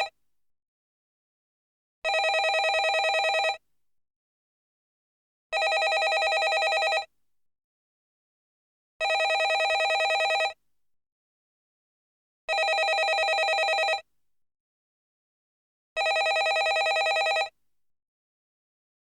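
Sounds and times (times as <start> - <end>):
landline telephone ringing: 2.1 - 3.6, 5.6 - 7.1, 9.0 - 10.6, 12.5 - 14.0, 16.0 - 17.5.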